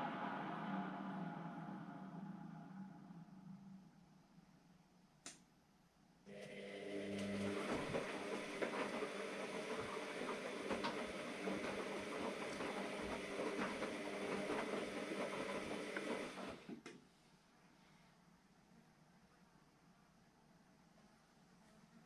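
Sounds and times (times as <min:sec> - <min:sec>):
washing machine motor hum: 0:06.3 - 0:16.8.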